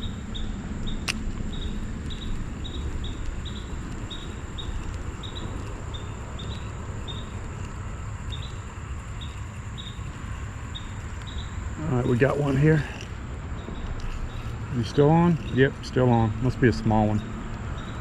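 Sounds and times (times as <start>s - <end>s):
high insect whine: 0.0s - 18.0s
insects chirping: 0.0s - 18.0s
low steady rush: 0.0s - 18.0s
sharp click: 1.0s - 2.2s.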